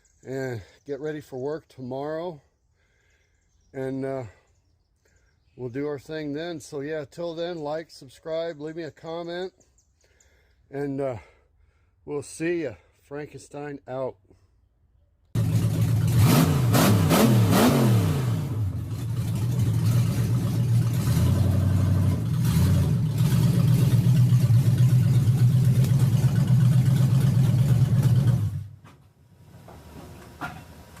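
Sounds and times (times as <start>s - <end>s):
engine revving: 15.4s - 28.8s.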